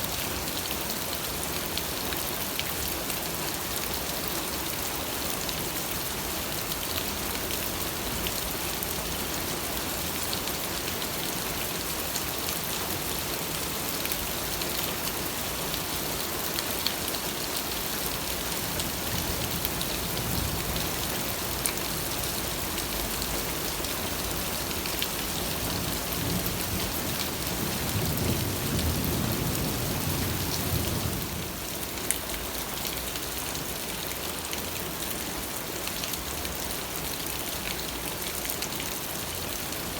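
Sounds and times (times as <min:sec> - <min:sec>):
steady rain falling: 0:00.0 - 0:39.9
low rumble of thunder: 0:25.8 - 0:31.5.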